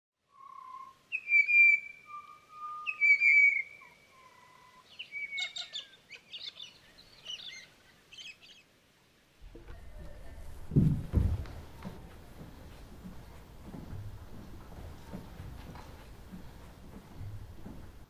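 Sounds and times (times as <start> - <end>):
birds singing: 0.4 - 8.7.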